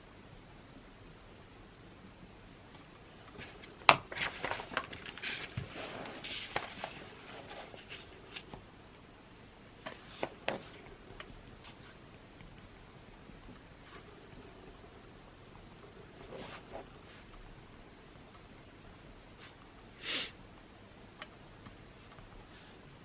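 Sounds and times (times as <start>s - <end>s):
papers rustling: 3.2s - 8.7s, 9.8s - 12.1s.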